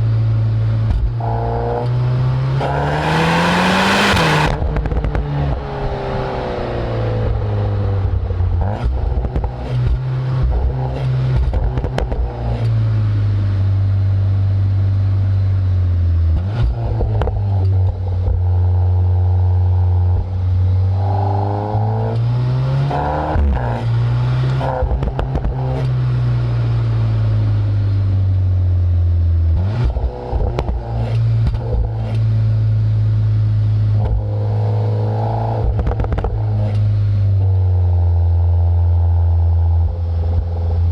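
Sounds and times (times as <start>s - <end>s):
car exhaust revving: 0.0s - 40.9s
exhaust cracks: 2.6s - 12.9s, 16.3s - 27.1s, 29.5s - 40.9s.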